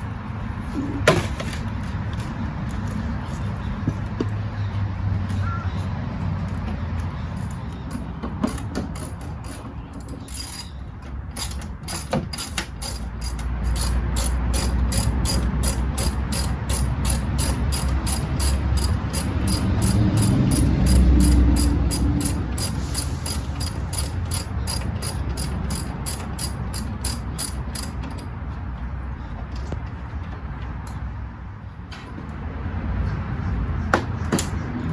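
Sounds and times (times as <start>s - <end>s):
ratchet wrench clicking: 7.4s - 28.3s.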